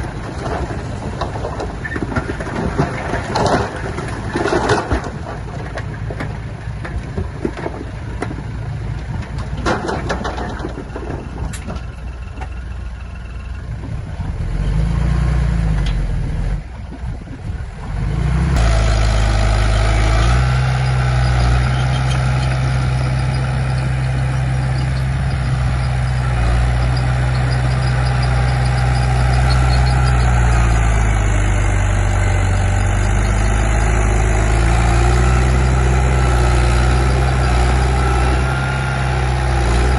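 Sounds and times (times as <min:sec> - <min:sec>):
heavy diesel engine drone: 0:17.4 - 0:39.9.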